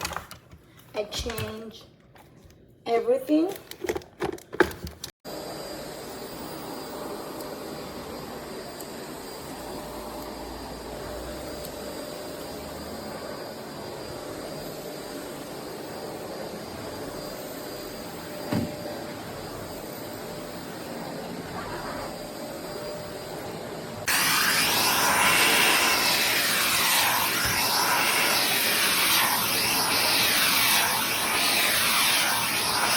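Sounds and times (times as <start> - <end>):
vacuum cleaner humming: 5.3 - 32.9
rushing hiss of air: 24.1 - 32.9.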